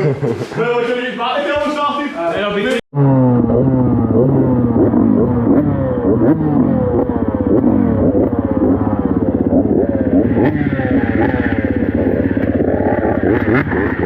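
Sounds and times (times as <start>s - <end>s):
dirt bike engine revving: 2.9s - 14.0s.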